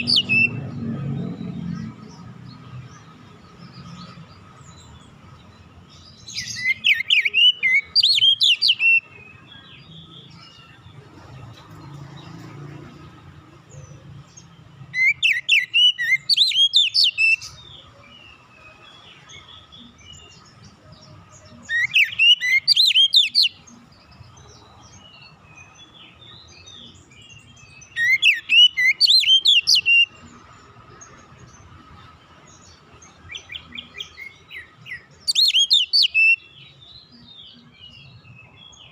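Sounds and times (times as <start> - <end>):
bird singing whistled phrases: 6.4 - 9.1, 14.9 - 17.6, 21.7 - 23.6, 27.9 - 30.2, 35.3 - 36.7.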